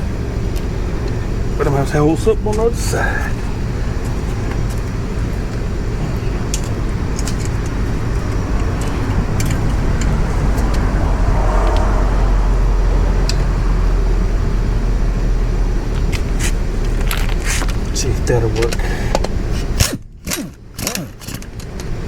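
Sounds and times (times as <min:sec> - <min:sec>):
low background rumble: 0:00.0 - 0:22.0
metallic clicks of hand tools: 0:18.6 - 0:21.9.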